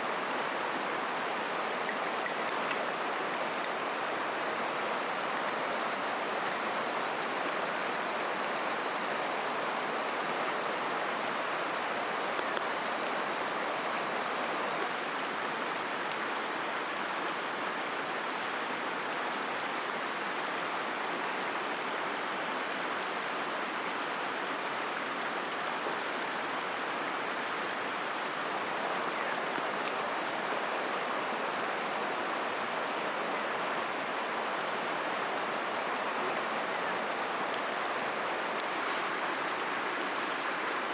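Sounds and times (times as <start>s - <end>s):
river flowing: 0.0s - 40.9s
faint high ticks: 1.1s - 3.8s, 5.3s - 5.7s.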